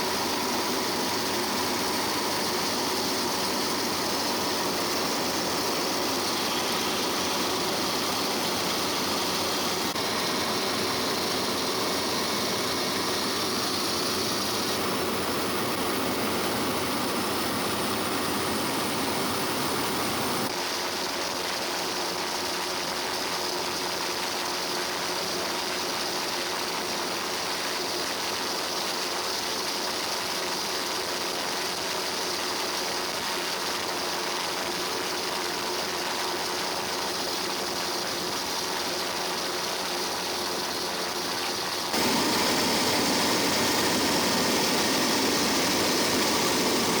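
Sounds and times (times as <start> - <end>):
helicopter engine and rotor noise: 0.0 - 20.5, 36.4 - 47.0.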